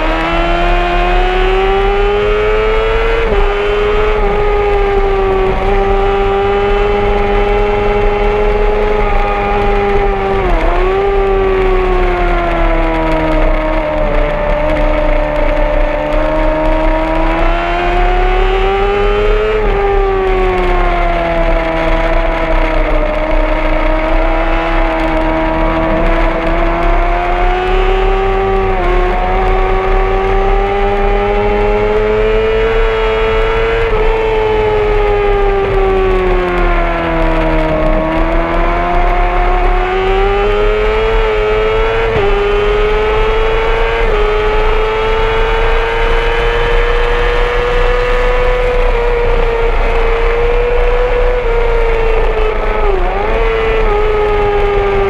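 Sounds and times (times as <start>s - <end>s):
motorcycle engine at high revs: 0.0s - 55.0s
wind rush: 0.0s - 55.0s.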